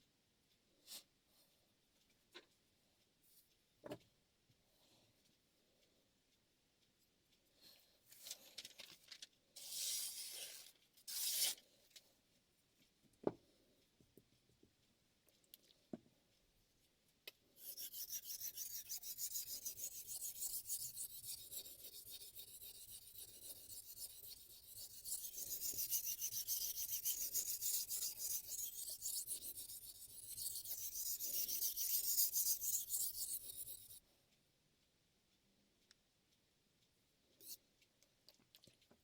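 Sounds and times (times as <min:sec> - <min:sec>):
knife grinding on whetstone: 0:11.1 - 0:11.6, 0:17.6 - 0:34.0.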